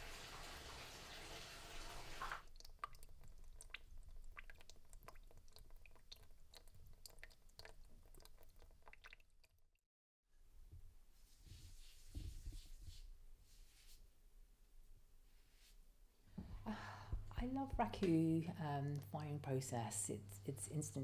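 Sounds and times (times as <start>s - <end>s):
small irregular clicks and crackles: 2.4s - 9.6s.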